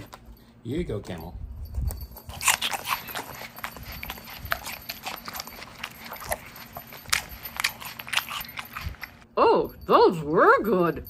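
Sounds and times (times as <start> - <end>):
corn chips crunching: 2.2 - 9.2.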